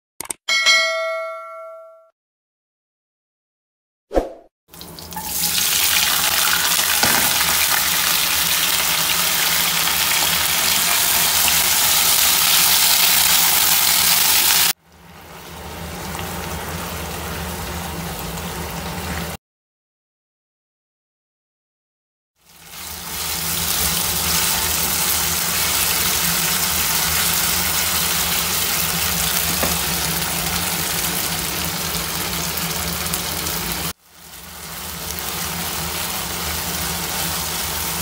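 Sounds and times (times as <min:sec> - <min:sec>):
food sizzling in a frying pan: 0:04.7 - 0:19.3, 0:22.4 - 0:38.0.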